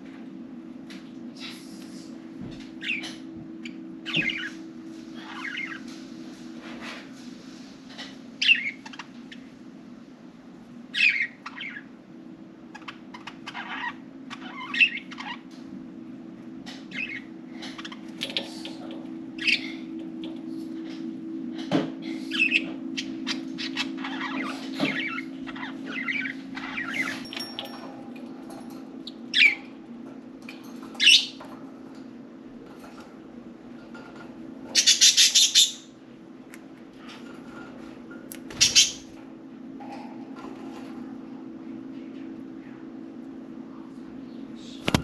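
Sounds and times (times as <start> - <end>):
steady low hum: 0.0 - 45.0
budgerigars chirping: 8.4 - 9.1, 10.9 - 11.9, 12.8 - 15.4, 22.3 - 27.2, 34.8 - 35.9, 38.6 - 39.1.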